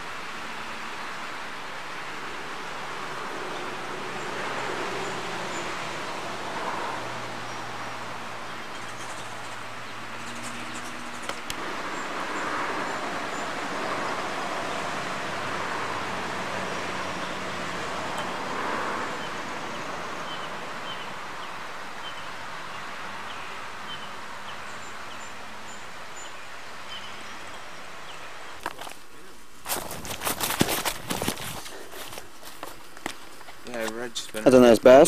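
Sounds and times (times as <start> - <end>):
steady rushing outdoor noise: 0.0 - 35.0
bird chirping: 8.4 - 13.6, 19.0 - 29.3.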